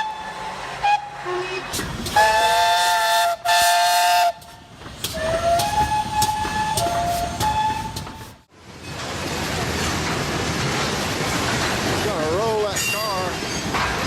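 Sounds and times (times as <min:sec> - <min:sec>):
steam locomotive whistle blasts: 0:00.0 - 0:04.5, 0:05.2 - 0:08.3.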